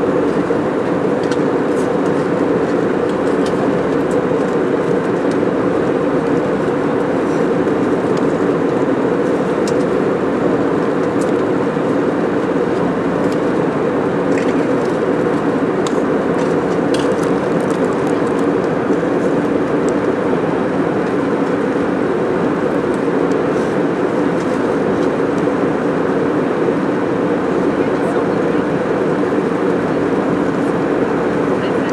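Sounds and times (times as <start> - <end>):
airliner cabin engine rush: 0.0 - 31.9.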